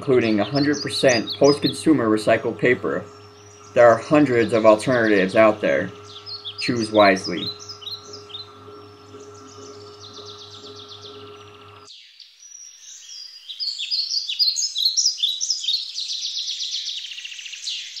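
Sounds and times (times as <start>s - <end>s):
low steady hum: 0.0s - 11.9s
small birds chirping and trilling: 0.0s - 18.0s.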